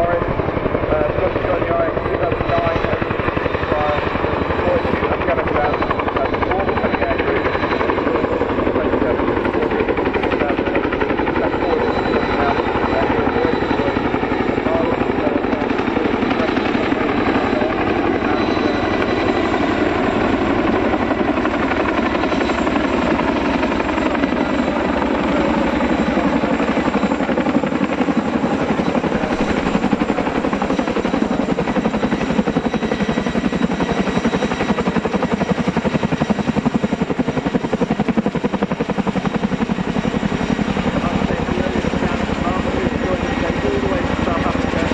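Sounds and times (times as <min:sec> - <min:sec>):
helicopter rotor blades chopping: 0:00.0 - 0:44.9
turbines running: 0:00.0 - 0:44.9.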